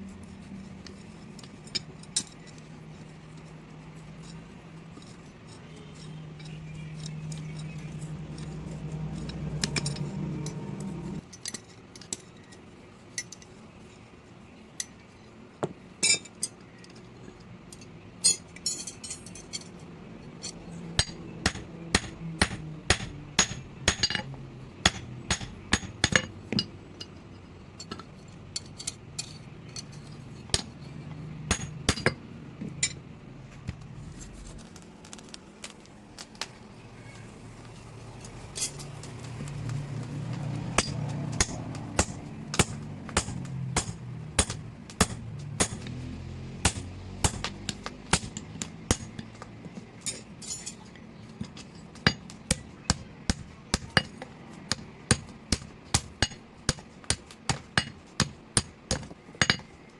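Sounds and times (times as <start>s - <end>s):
steady low hum: 0.0s - 59.9s
hammer striking metal: 21.0s - 26.7s, 31.5s - 32.2s, 40.8s - 46.0s, 46.6s - 49.3s.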